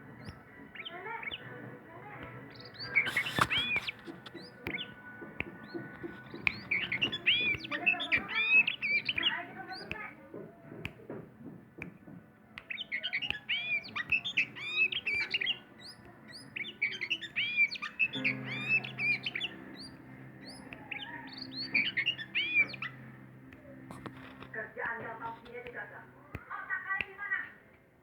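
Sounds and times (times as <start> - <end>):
faint clicks: 0.2 - 28.0
bird singing whistled notes: 2.4 - 10.1, 12.6 - 23.9.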